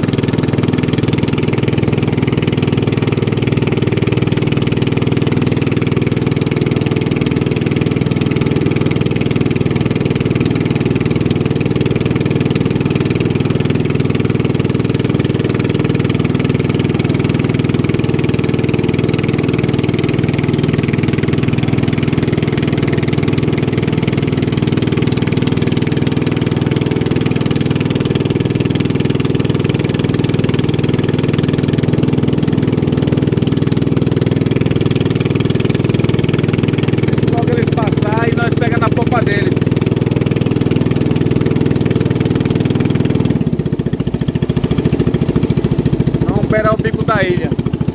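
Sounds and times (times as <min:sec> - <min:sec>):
motorboat engine running: 0:00.0 - 0:47.9.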